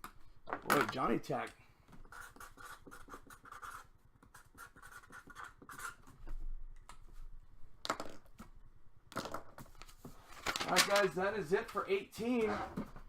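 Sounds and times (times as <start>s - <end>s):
trading cards rustling: 9.6s - 11.8s.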